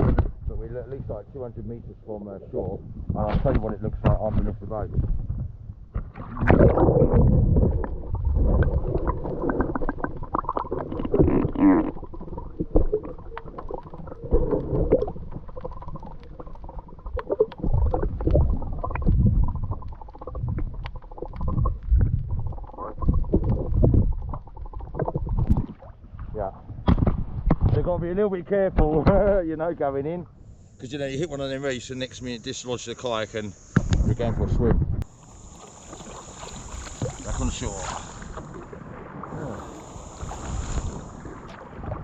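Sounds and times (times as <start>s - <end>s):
muffled underwater sloshing: 3.0s - 27.9s, 30.5s - 42.0s.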